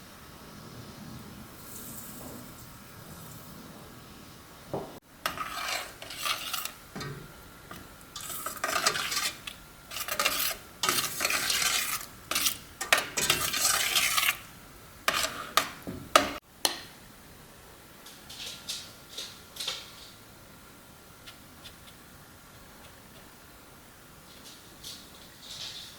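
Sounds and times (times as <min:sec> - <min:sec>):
utensil scraping mixture in bowl: 0:05.2 - 0:16.4.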